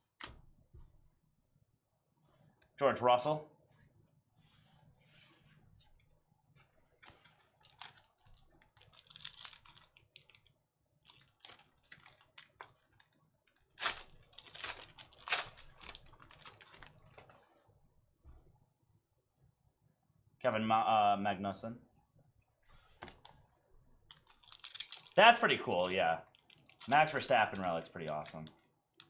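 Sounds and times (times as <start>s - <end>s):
trading cards clicking and rustling: 24.1s - 28.7s.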